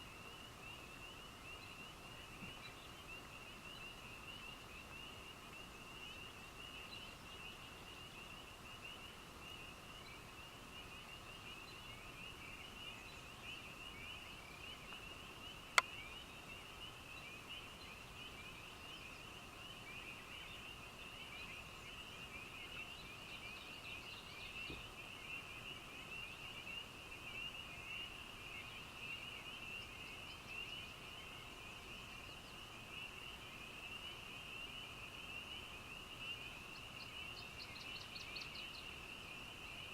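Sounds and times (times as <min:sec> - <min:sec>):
lower-pitched frog chorus: 0:00.0 - 0:39.9.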